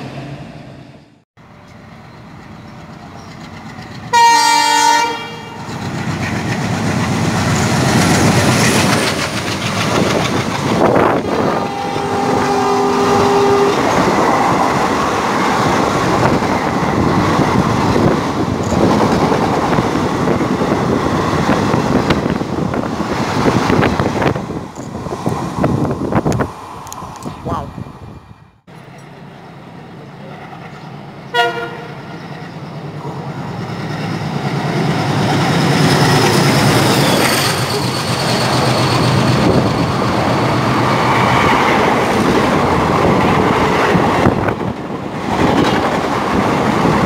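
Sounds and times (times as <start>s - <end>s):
diesel locomotive passing: 0.0s - 47.0s
wheels clacking over rail joints: 1.5s - 4.7s, 5.6s - 12.6s
train horn blasts: 4.1s - 5.7s, 11.4s - 14.0s, 31.3s - 32.0s.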